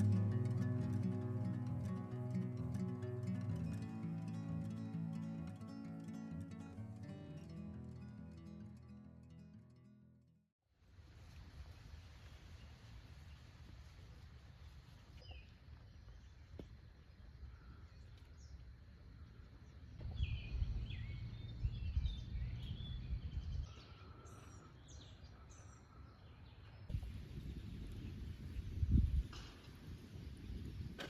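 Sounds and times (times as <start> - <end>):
faint outdoor background: 0.0 - 31.0
birds chirping and singing: 20.0 - 26.8.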